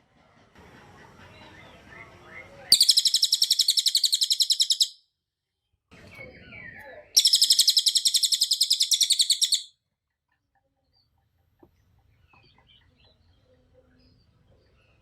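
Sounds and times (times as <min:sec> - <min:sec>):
bird fast high trill: 0:02.7 - 0:05.0, 0:07.2 - 0:09.7
bird soft twittering: 0:02.8 - 0:05.0, 0:06.0 - 0:09.7.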